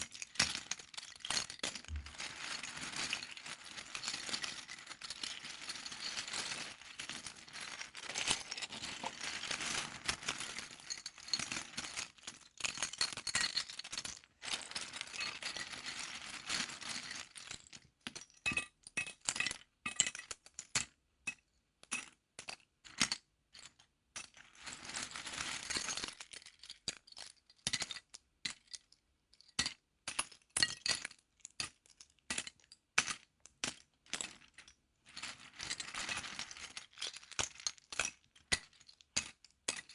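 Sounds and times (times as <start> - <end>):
plastic bricks rattling and clicking: 0.0 - 17.4.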